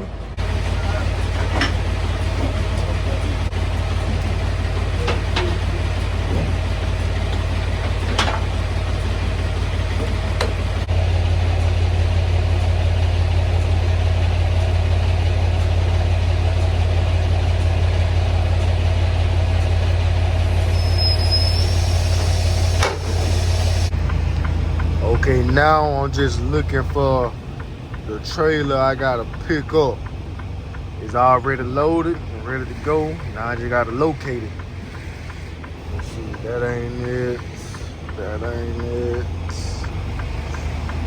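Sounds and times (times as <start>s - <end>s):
truck diesel engine idling: 0.0s - 41.0s
sharp clicks: 23.9s - 41.0s.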